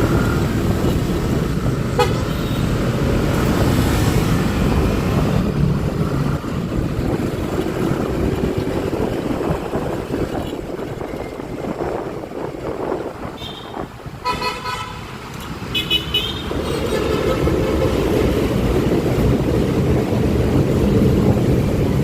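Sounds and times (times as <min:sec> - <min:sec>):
wind and road noise: 0:00.0 - 0:22.0
vehicle horns tooting: 0:02.0 - 0:02.7, 0:13.3 - 0:18.2.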